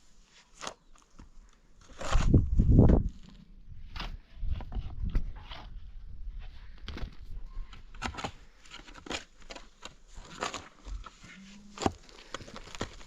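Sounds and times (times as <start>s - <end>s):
clicks and knocks of handling: 6.8s - 13.0s.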